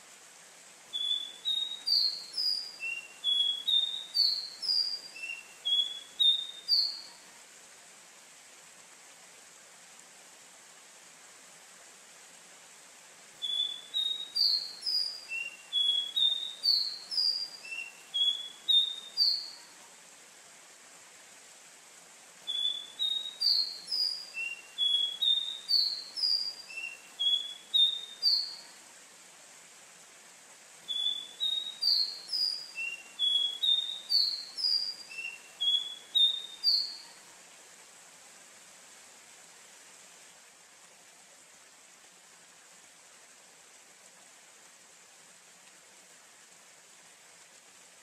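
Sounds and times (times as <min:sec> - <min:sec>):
faint steady hiss: 0:00.0 - 0:48.0
bird singing whistled notes: 0:00.9 - 0:07.2, 0:13.4 - 0:19.6, 0:22.5 - 0:28.7, 0:30.9 - 0:37.2.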